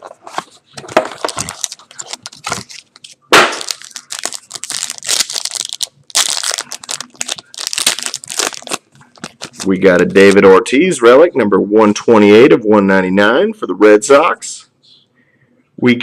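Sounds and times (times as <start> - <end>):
packaging crinkling: 0.0 - 9.7
loud crack of packaging: 1.1 - 9.7.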